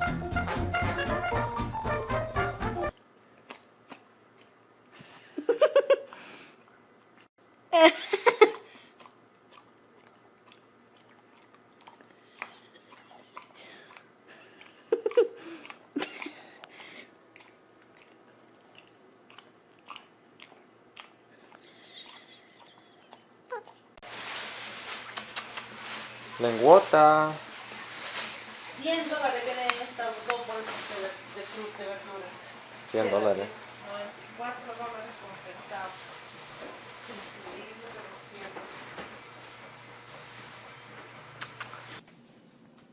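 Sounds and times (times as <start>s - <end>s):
dog licking and smacking: 8.5s - 23.9s
dog vocal noises: 8.5s - 23.9s.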